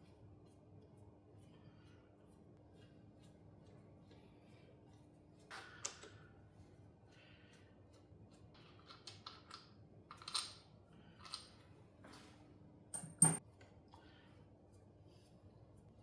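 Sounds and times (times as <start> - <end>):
metal parts and tools clinking: 13.0 - 13.4.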